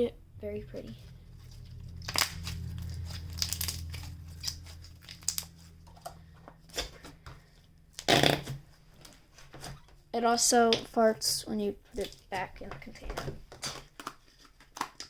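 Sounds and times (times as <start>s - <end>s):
slime squelching and crackling: 0.7s - 5.8s, 11.9s - 15.0s.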